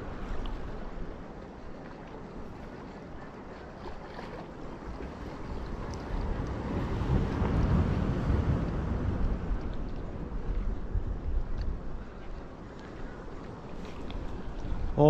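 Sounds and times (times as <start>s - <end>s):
ocean surf: 0.0s - 11.4s, 12.0s - 15.0s
wind noise: 5.2s - 15.0s.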